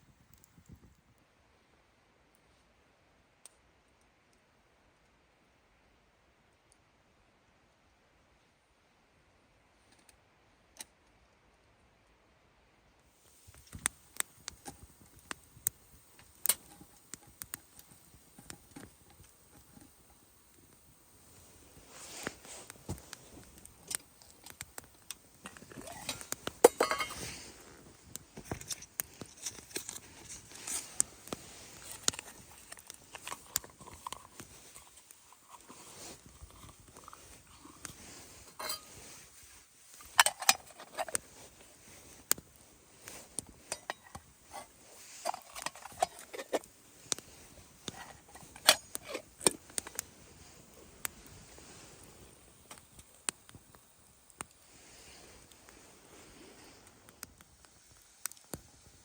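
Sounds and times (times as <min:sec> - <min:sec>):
metal cookware clinking: 0:25.8 - 0:27.2.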